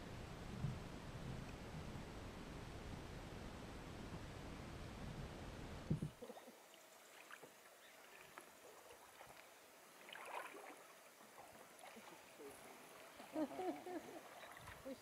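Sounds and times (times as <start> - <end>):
paddle splashing water: 6.0 - 15.0.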